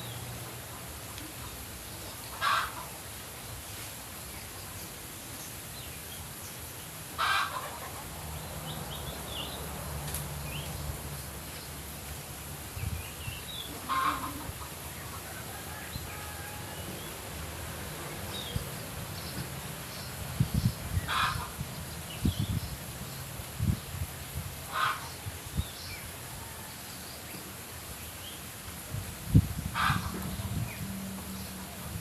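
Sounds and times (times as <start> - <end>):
harsh bird calls: 20.6 - 21.6.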